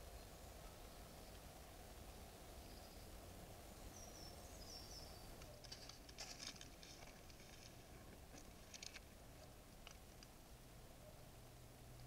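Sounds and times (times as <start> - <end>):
faint clicks and rustles: 5.3 - 10.5.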